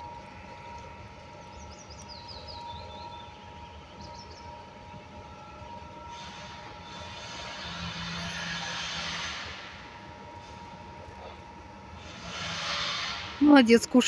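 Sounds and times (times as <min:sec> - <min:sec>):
steady hum: 0:00.0 - 0:14.0
broad hiss: 0:12.0 - 0:13.5.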